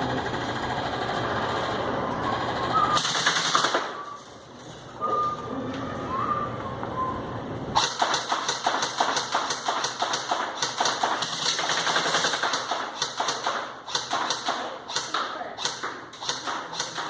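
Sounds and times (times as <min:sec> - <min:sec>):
airsoft rifle firing: 0:03.0 - 0:04.0, 0:07.8 - 0:17.0.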